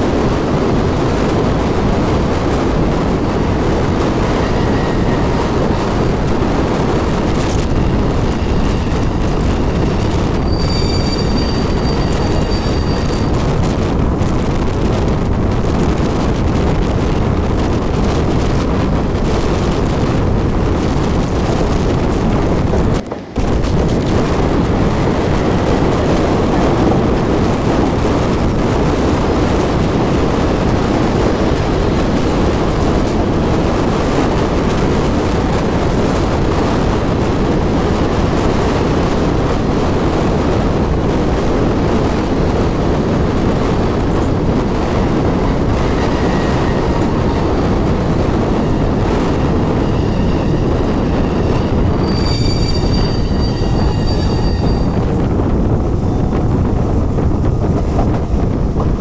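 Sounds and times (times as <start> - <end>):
train wheels rumbling on rails: 0.0 - 59.0
shrill wheel squealing: 7.6 - 13.6, 44.9 - 55.3.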